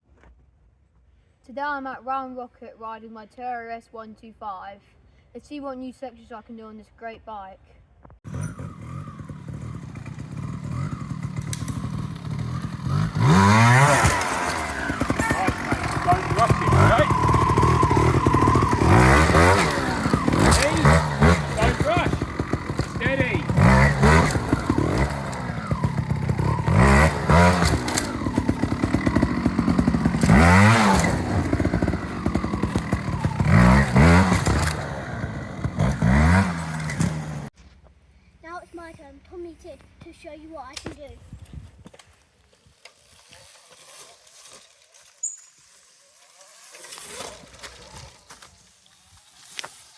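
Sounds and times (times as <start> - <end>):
motorcycle engine revving: 8.2 - 37.6.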